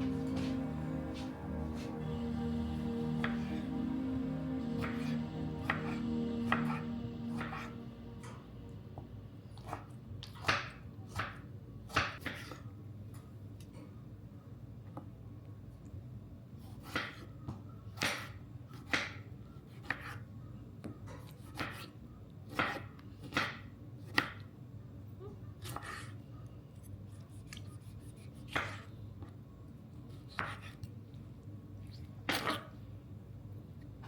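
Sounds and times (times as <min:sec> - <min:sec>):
knife chopping on cutting board: 0:22.5 - 0:24.4.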